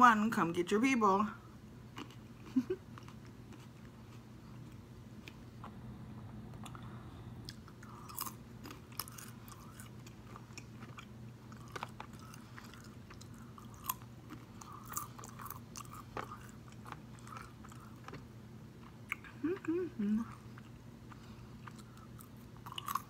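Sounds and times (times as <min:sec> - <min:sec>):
person chewing food: 0:01.9 - 0:05.8, 0:06.5 - 0:23.0
mouth clicks and crunches: 0:07.4 - 0:19.7.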